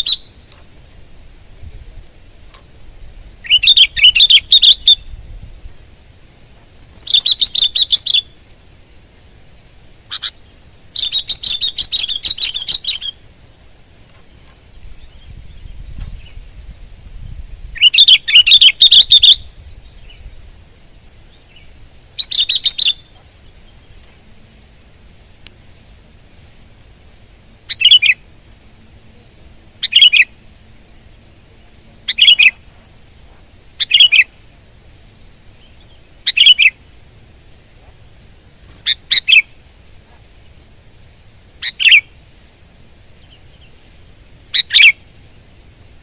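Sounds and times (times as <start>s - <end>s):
bird singing rapid phrases: 0.0s - 0.6s, 3.4s - 5.2s, 6.6s - 8.4s, 9.5s - 13.2s, 17.7s - 20.5s, 21.3s - 24.1s, 27.7s - 28.3s, 29.2s - 30.5s, 31.3s - 32.7s, 33.4s - 36.8s, 38.5s - 39.6s, 40.3s - 43.8s, 44.5s - 45.5s.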